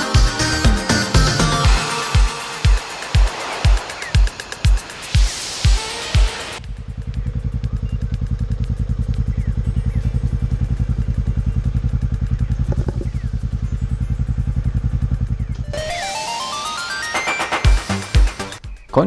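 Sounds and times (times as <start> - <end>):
motorcycle engine cruising: 5.8 - 17.1.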